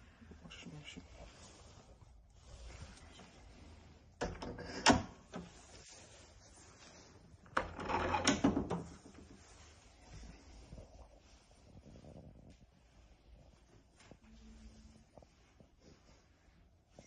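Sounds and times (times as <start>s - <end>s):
cabinet sliding and clattering: 7.5s - 9.4s.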